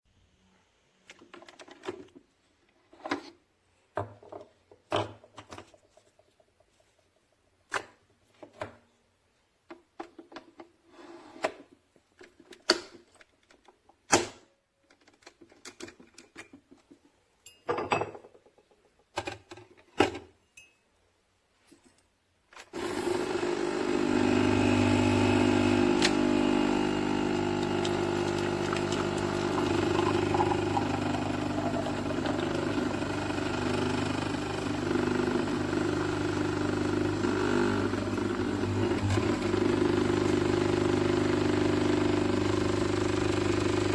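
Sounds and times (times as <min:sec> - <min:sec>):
coffee machine pump humming: 0:22.8 - 0:43.9.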